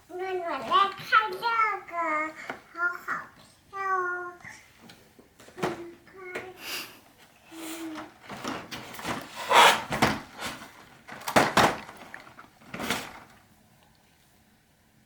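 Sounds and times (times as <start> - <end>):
small objects knocking and rustling: 8.2 - 13.4.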